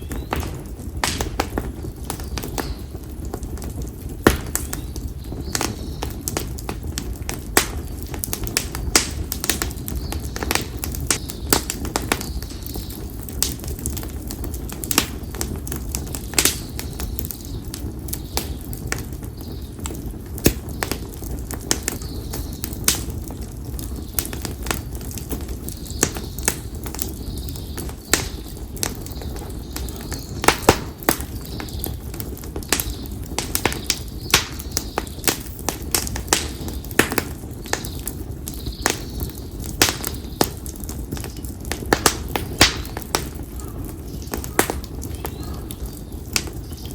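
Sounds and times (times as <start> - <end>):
campfire crackling and popping: 0.0 - 46.9
fire low rumble: 0.0 - 46.9.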